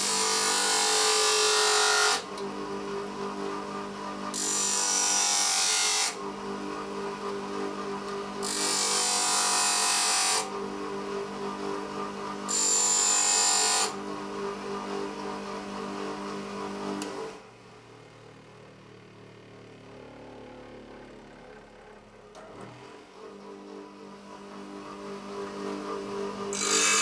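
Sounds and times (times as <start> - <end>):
power tool motor running: 20.0 - 27.0.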